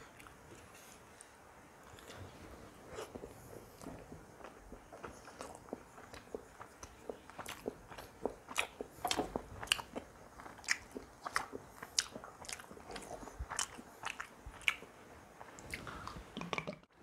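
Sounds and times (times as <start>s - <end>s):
man chewing food: 0.0s - 16.6s.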